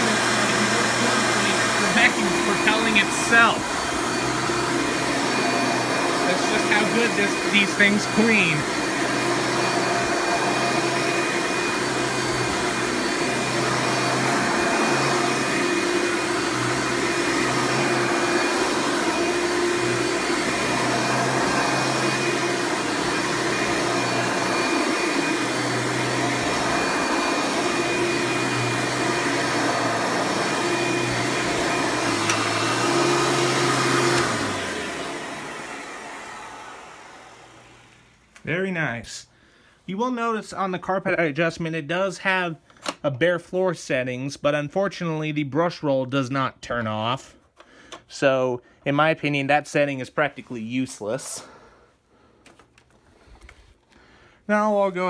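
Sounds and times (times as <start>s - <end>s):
vacuum motor winding down: 0.0s - 38.2s
upright vacuum cleaner running: 0.0s - 38.3s.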